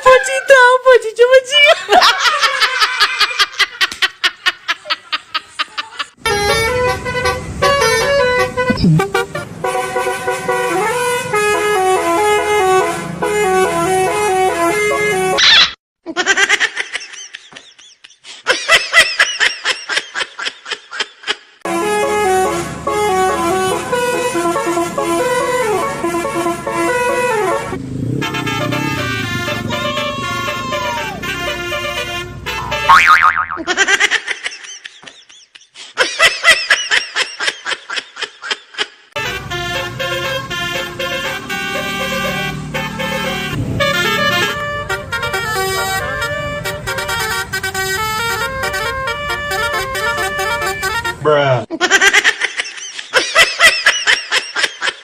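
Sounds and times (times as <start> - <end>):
multi-tone bus horn tune: 6.2 - 15.4, 21.6 - 33.0, 39.2 - 51.4.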